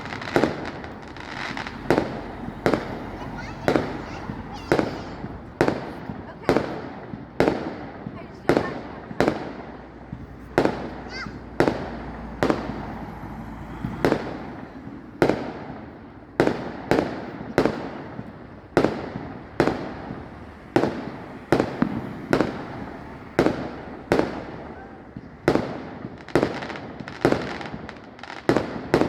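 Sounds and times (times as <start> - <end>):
firework shells bursting: 0.0 - 8.1.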